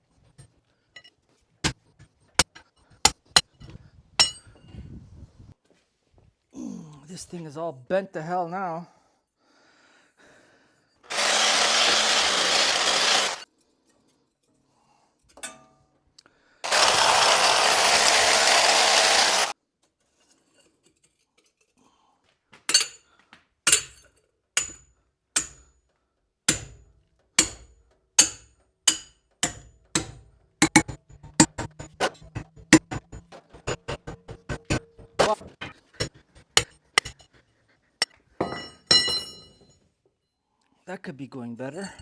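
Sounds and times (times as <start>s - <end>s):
power tool motor running: 11.1s - 13.4s, 16.6s - 19.5s.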